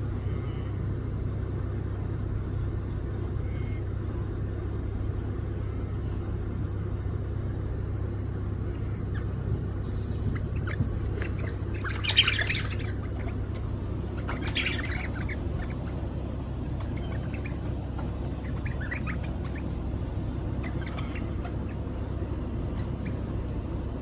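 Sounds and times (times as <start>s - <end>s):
parrot squawking: 8.8s - 9.5s, 10.2s - 23.4s.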